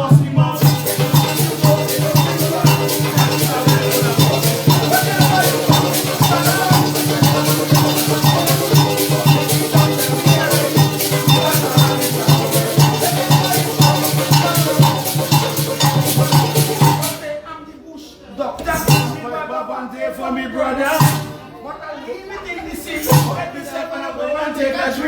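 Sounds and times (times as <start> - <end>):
bass line: 0.0 - 17.1
band melody: 0.0 - 17.2
maraca rhythm: 0.0 - 17.4, 18.6 - 19.5, 20.7 - 21.7, 22.4 - 24.0.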